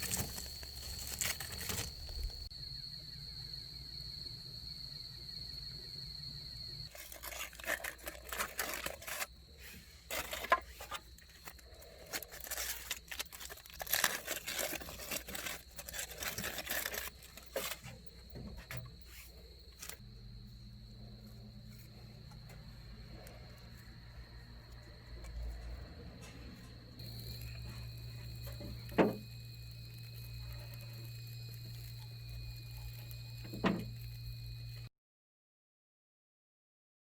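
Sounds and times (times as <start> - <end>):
crackling and rustling clicks: 0.0 - 2.5, 6.9 - 9.3, 10.1 - 18.9, 27.0 - 34.9
crickets trilling: 0.0 - 34.9.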